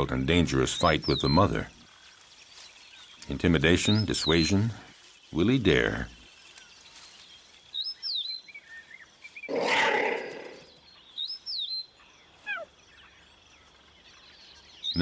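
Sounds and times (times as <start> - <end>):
birds chirping: 0.0 - 15.0
harsh animal call: 9.5 - 10.7.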